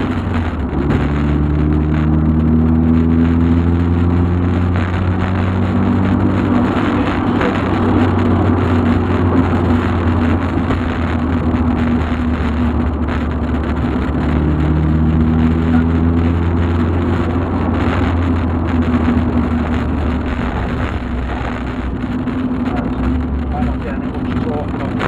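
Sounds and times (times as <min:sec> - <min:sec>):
car engine running: 0:00.0 - 0:25.0
road noise: 0:00.0 - 0:25.0.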